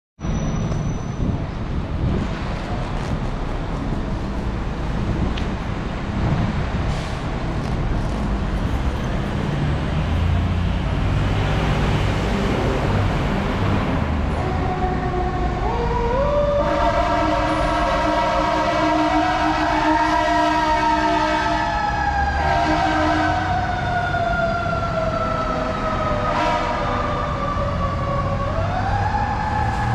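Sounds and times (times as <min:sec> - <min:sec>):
truck engine rumbling: 0:00.2 - 0:29.9
fire engine siren: 0:11.3 - 0:29.9.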